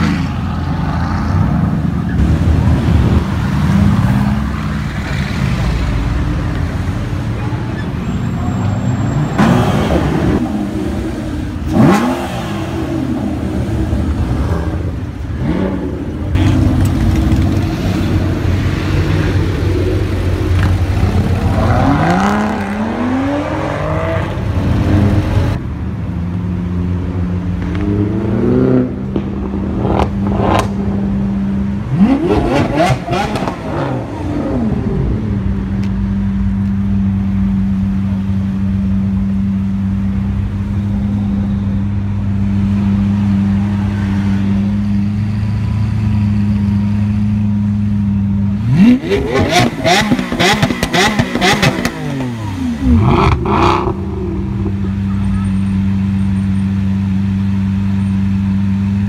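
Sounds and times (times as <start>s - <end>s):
sports car engine revving: 9.4s - 25.6s, 31.8s - 35.4s, 48.6s - 55.2s.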